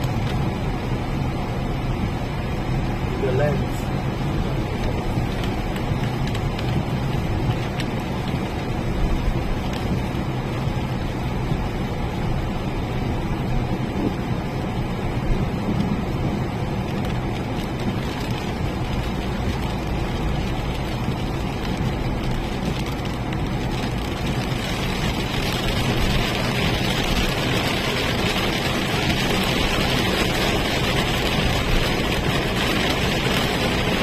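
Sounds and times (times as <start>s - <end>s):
engine and tyres rumbling: 0.0s - 34.0s
hiss of tyres on wet road: 0.0s - 34.0s.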